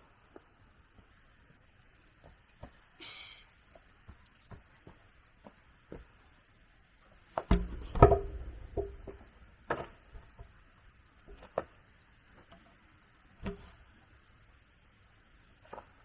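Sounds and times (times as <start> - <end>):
faint high hiss: 2.7 - 4.4
wood knocking and clattering: 7.4 - 10.6.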